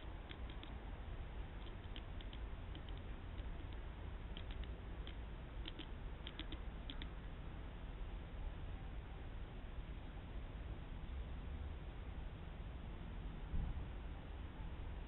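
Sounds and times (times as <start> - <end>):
birds pecking at seed bell: 0.2 - 0.8, 1.5 - 7.1.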